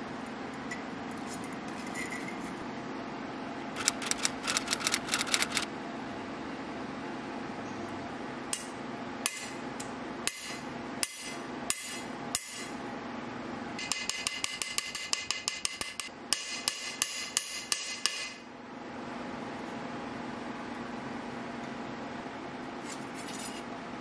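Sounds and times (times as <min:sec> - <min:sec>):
hammer striking steel blade: 0:08.5 - 0:09.6, 0:10.3 - 0:12.7, 0:13.8 - 0:18.4.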